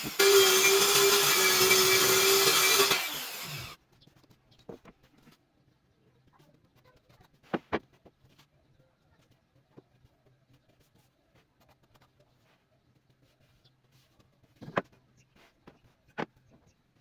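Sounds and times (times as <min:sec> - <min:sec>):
table saw cutting wood: 0:00.0 - 0:03.8.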